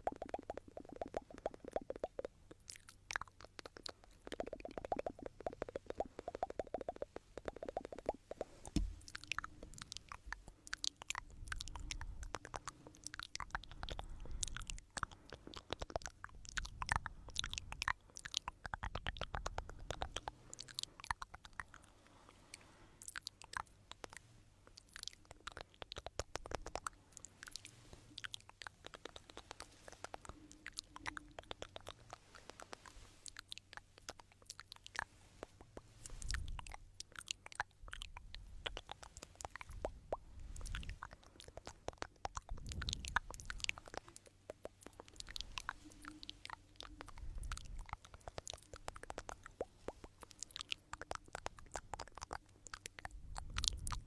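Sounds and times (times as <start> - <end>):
soft low thumps: 8.6 - 10.5
crisp clicks: 23.1 - 37.7, 38.7 - 54.0.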